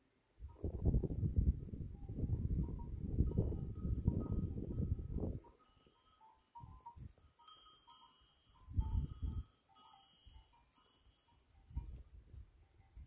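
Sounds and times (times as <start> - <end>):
animal bells clinking: 2.6 - 13.0.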